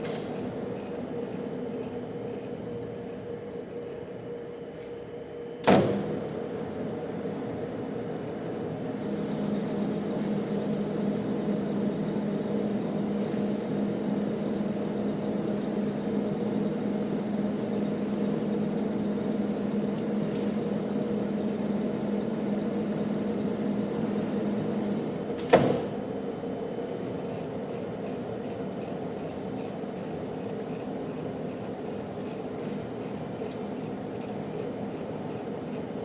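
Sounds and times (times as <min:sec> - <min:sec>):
metal lathe humming: 0:09.0 - 0:25.3.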